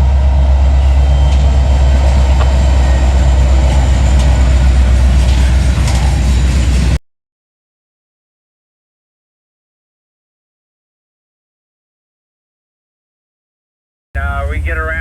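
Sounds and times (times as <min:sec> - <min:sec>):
freight train rumbling past: 0:00.0 - 0:07.0, 0:14.2 - 0:15.0.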